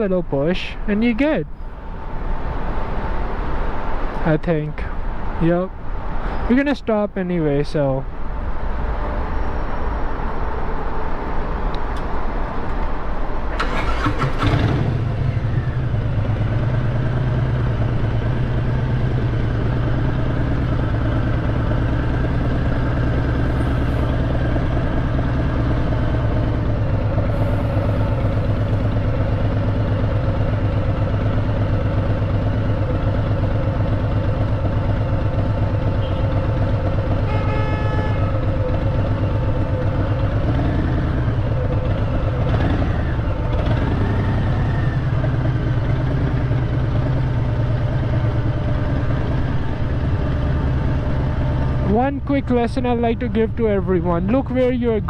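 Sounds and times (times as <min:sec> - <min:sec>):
motorcycle engine starting and idling: 0:11.8 - 0:37.2, 0:38.4 - 0:55.0.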